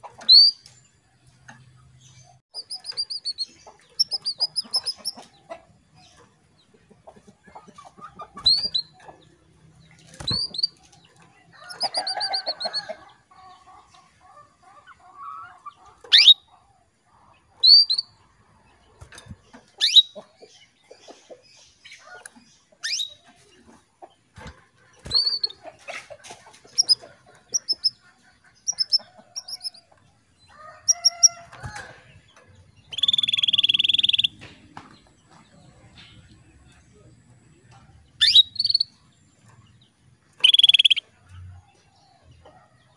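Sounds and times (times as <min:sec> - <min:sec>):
canary chirping: 0:00.1 - 0:00.8, 0:02.0 - 0:06.3, 0:07.4 - 0:16.6, 0:17.6 - 0:18.3, 0:19.6 - 0:23.6, 0:25.0 - 0:25.8, 0:26.5 - 0:29.9, 0:30.6 - 0:34.4, 0:38.1 - 0:39.0, 0:40.4 - 0:41.0
low clucking calls: 0:02.3 - 0:11.1, 0:19.0 - 0:30.0, 0:40.3 - 0:41.1.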